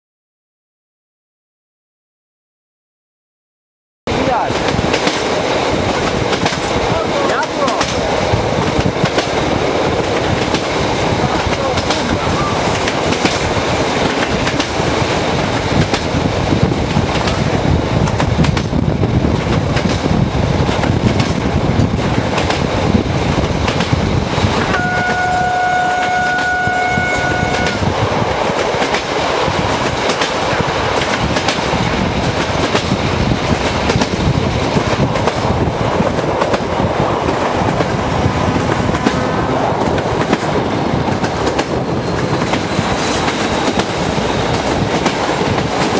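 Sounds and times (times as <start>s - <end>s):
train wheels clattering on rails: 4.1s - 45.9s
locomotive horn: 24.7s - 27.9s.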